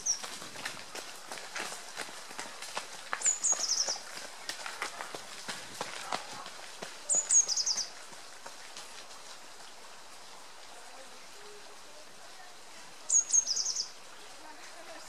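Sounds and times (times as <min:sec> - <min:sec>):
small songbird singing: 0:03.2 - 0:04.0, 0:07.1 - 0:07.9, 0:13.1 - 0:14.0
faint steady hiss: 0:06.5 - 0:15.0.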